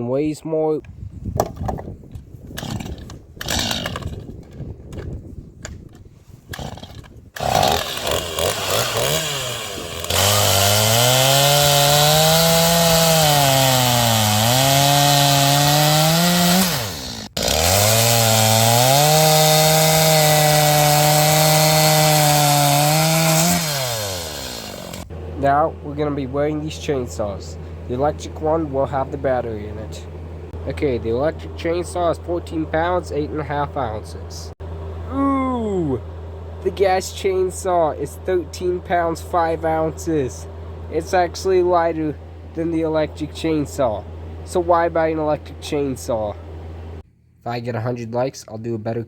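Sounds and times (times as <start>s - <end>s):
chainsaw cutting wood: 2.5s - 4.3s, 6.5s - 25.3s.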